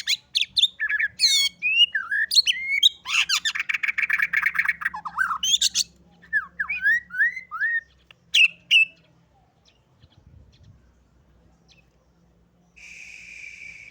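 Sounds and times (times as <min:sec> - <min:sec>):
bird singing whistles: 0:00.0 - 0:09.0, 0:12.8 - 0:13.9.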